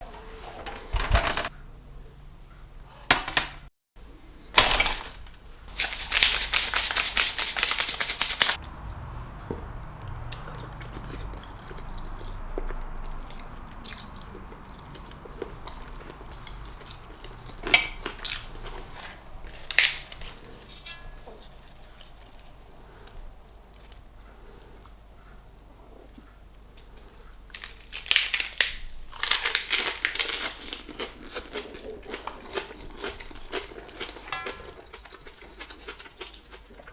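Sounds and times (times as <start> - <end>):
fast rattling strokes: 5.7 - 8.6.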